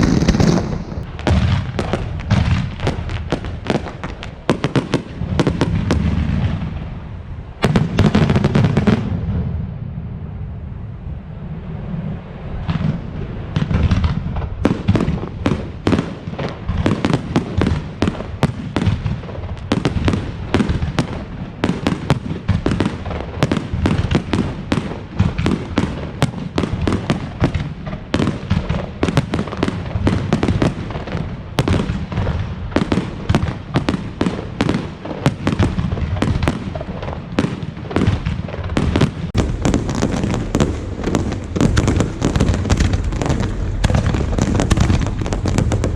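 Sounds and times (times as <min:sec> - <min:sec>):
fireworks bursting and crackling: 0:00.0 - 0:09.8, 0:11.8 - 0:45.9
deep rumble of booms: 0:12.6 - 0:15.6, 0:37.9 - 0:45.9.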